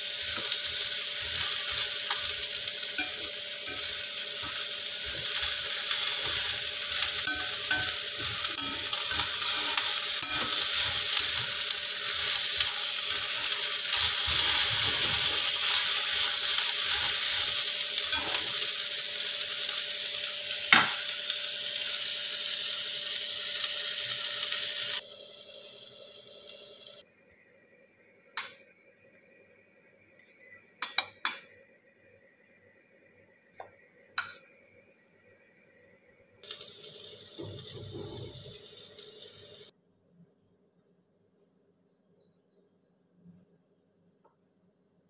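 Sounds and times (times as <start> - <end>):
food sizzling in hot oil: 0.0 - 39.7
metal spatula scraping: 0.3 - 18.8.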